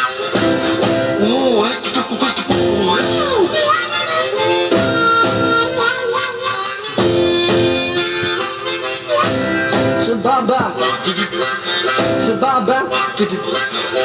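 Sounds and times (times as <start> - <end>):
beat band backing: 0.0 - 14.0
harmonica bending notes: 0.0 - 14.0.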